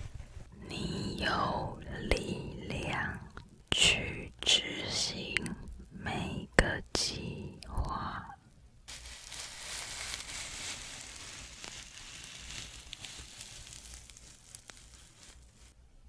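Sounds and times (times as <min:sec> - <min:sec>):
fire crackling and popping: 0:08.9 - 0:15.8.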